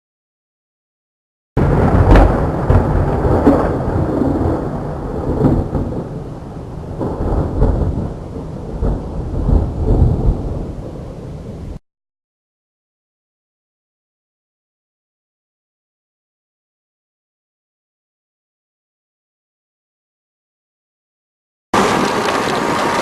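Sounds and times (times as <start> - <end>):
rain: 1.6 - 11.8, 21.8 - 23.0.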